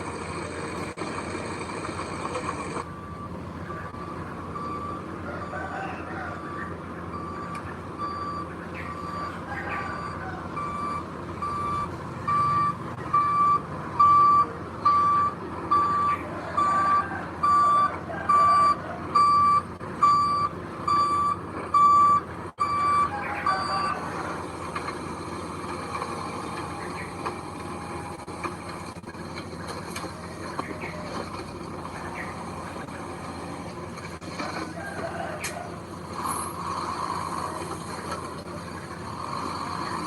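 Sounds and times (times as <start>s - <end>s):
vehicle engine running: 0.0s - 40.0s
reversing alarm beeping: 2.4s - 24.5s.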